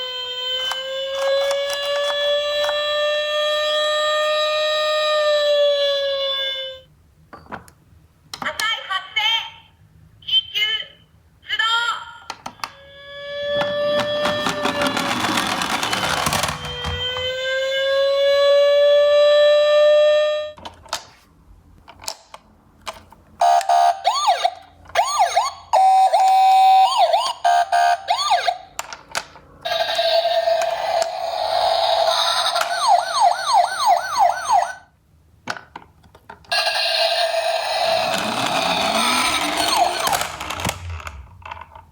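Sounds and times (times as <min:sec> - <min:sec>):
electronic toy siren: 0:00.0 - 0:06.9, 0:12.6 - 0:20.6, 0:23.4 - 0:28.7, 0:29.6 - 0:34.9, 0:36.5 - 0:41.3.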